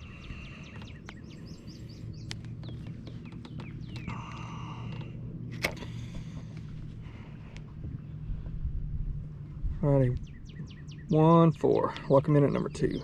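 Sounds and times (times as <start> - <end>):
birds chirping: 0.0 - 8.8, 9.4 - 13.0
steady low hum: 0.0 - 13.0.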